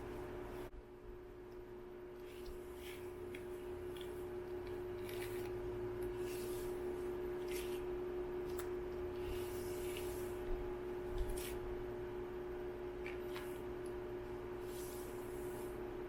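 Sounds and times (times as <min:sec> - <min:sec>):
steady low hum: 0:00.0 - 0:16.0
wet hair swishing: 0:02.2 - 0:04.3, 0:05.0 - 0:08.0, 0:09.1 - 0:10.6, 0:11.2 - 0:11.7.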